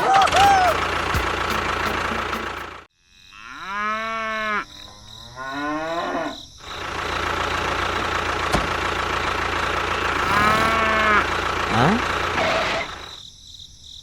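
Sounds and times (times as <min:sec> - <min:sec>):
steady motor noise: 0:00.0 - 0:02.8, 0:06.8 - 0:13.1
cow mooing: 0:03.4 - 0:06.4, 0:10.1 - 0:12.9.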